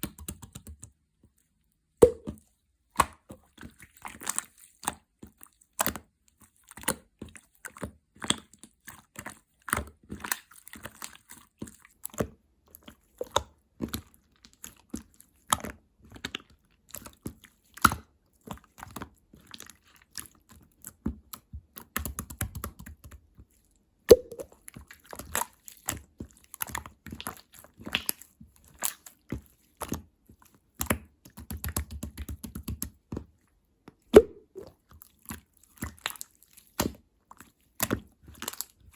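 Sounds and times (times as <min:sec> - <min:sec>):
slime wet clicks and pops: 0:02.0 - 0:02.4, 0:24.1 - 0:24.6, 0:34.2 - 0:34.7.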